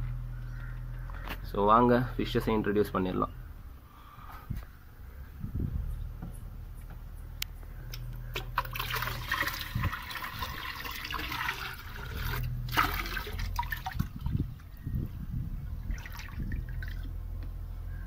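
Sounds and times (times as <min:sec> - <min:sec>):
water pouring into tank: 0:08.3 - 0:14.5, 0:15.9 - 0:17.2.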